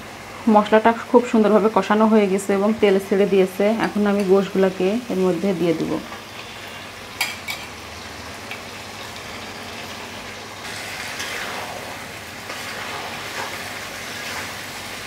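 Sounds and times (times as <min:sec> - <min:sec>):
chicken sizzling in oil: 0:03.5 - 0:15.0.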